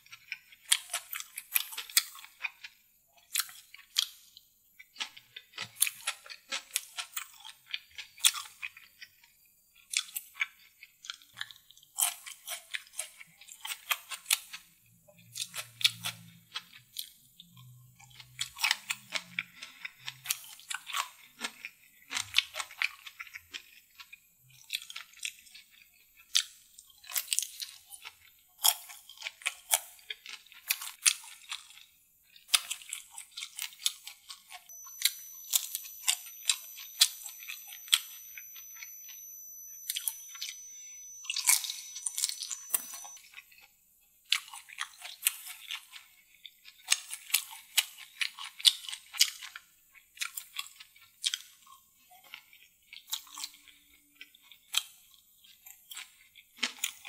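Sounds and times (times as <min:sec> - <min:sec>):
wet chewing mouth sounds: 0:00.0 - 0:38.9.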